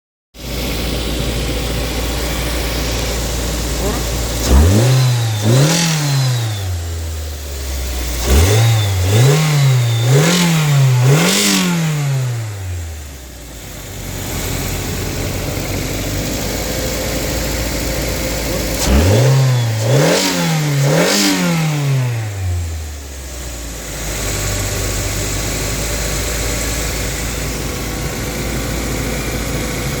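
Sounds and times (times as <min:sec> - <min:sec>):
car engine idling and revving: 0:00.4 - 0:30.0.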